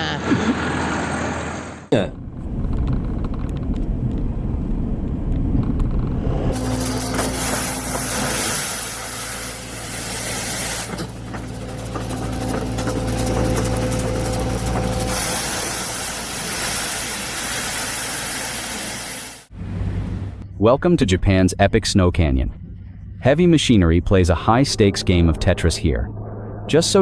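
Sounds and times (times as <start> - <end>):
vehicle engine running: 0.6 - 27.0
snow rushing hiss: 6.6 - 10.9, 15.0 - 19.5.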